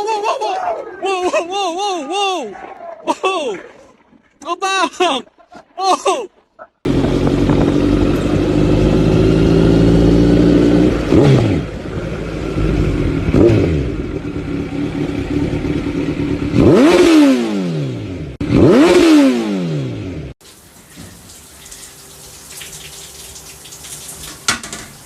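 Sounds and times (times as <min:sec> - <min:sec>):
vehicle engine revving: 0:06.9 - 0:20.4.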